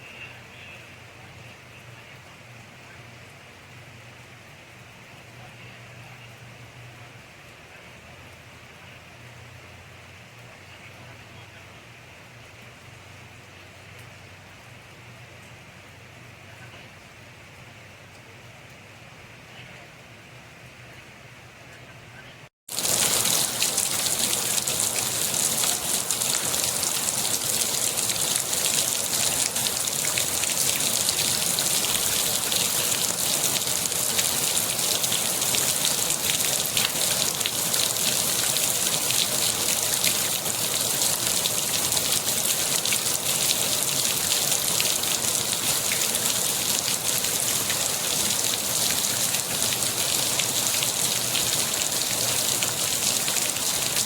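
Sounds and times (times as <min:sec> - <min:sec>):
rain falling: 0:22.7 - 0:54.0.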